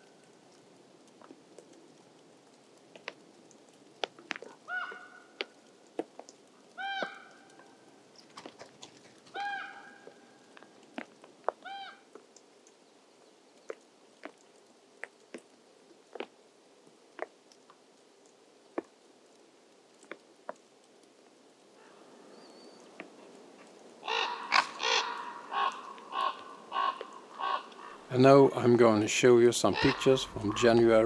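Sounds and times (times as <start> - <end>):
crow cawing: 4.7 - 5.5, 6.8 - 7.7, 9.3 - 10.4, 24.0 - 28.1, 29.7 - 30.9.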